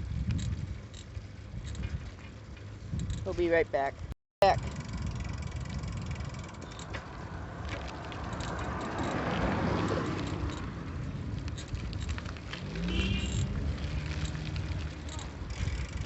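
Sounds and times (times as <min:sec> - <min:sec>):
bicycle ticking and rattling: 0:00.0 - 0:16.0
car passing: 0:05.4 - 0:16.0.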